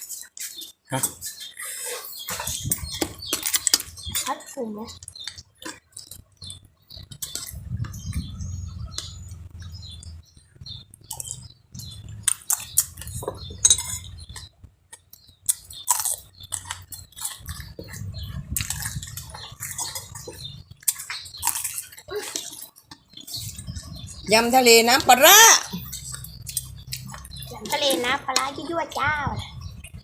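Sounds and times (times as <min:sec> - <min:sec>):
low handling rumbles: 0:07.5 - 0:11.0
utensils clinking on dishes: 0:13.6 - 0:14.2.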